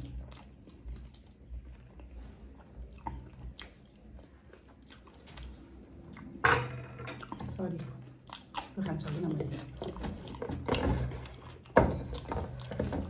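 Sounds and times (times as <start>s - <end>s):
person chewing food: 0.0s - 6.4s, 7.2s - 13.0s
wet mouth clicks and smacks: 2.8s - 4.1s.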